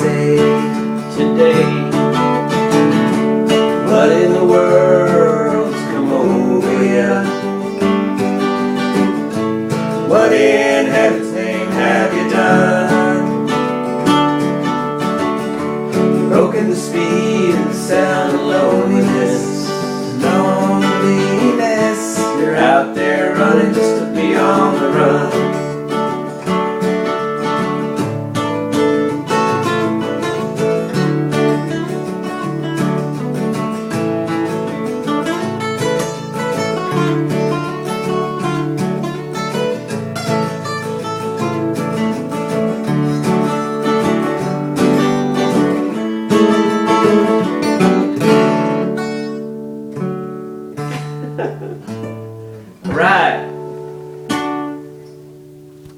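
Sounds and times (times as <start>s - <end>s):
person singing: 0.0s - 2.2s, 3.7s - 8.2s, 10.0s - 14.2s, 15.9s - 26.2s
acoustic guitar strumming: 0.0s - 55.9s.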